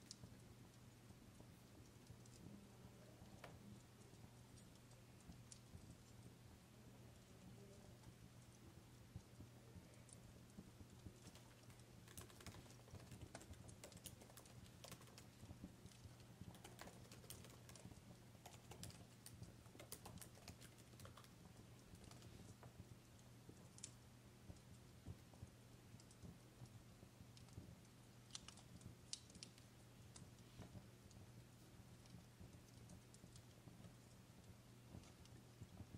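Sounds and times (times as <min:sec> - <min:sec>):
wood fire crackling and popping: 0:07.9 - 0:35.9.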